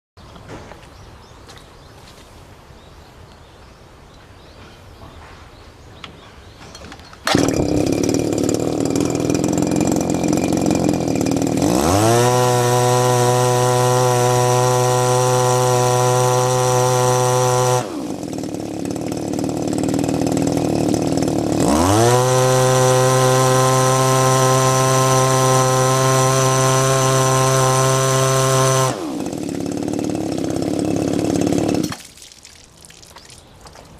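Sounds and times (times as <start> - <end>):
small pump engine revving: 7.2 - 32.4.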